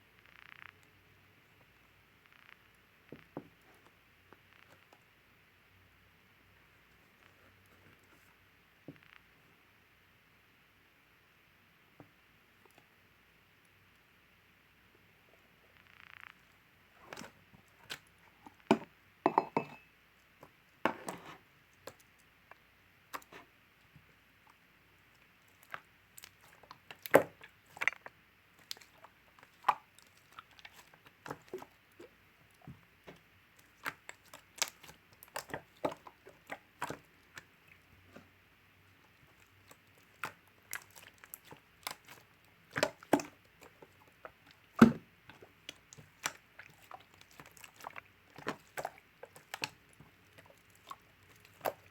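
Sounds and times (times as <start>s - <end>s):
faint steady hiss: 0.0s - 51.9s
slime squishing with clicks and pops: 0.2s - 1.0s, 2.2s - 5.1s, 8.9s - 9.3s, 15.8s - 19.0s, 20.3s - 38.3s, 38.9s - 51.9s.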